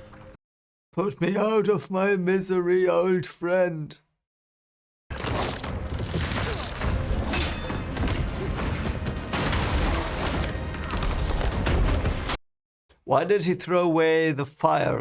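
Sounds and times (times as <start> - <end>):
dramatic film score: 5.1 - 12.4.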